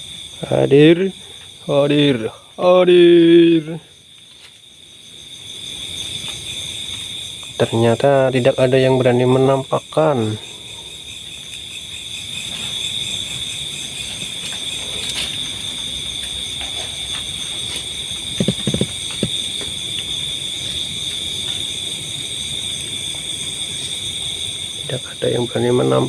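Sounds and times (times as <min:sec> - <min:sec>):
crickets trilling: 0:00.0 - 0:26.0
low knocks: 0:18.4 - 0:19.8.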